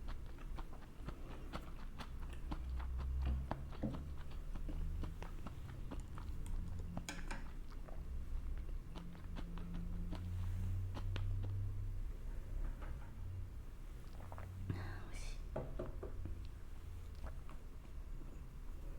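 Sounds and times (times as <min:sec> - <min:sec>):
chewing food: 0:00.0 - 0:12.4, 0:13.8 - 0:14.7, 0:15.9 - 0:18.9
low steady hum: 0:00.0 - 0:18.9
wet mouth clicks: 0:00.1 - 0:08.0, 0:14.0 - 0:14.6, 0:16.4 - 0:17.6.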